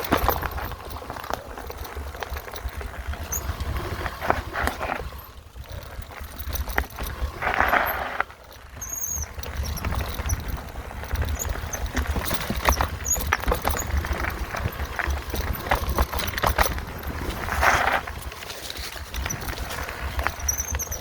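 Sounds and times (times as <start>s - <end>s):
mountain bike rattling over rough trail: 0.0s - 21.0s
wind rumbling on microphone: 0.0s - 21.0s.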